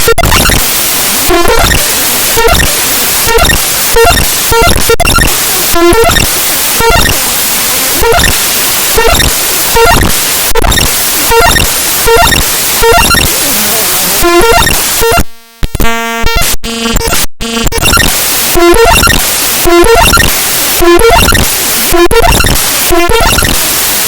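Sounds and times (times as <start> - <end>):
harsh static-like noise: 0.0 - 24.0
short tonal blips: 14.2 - 18.0.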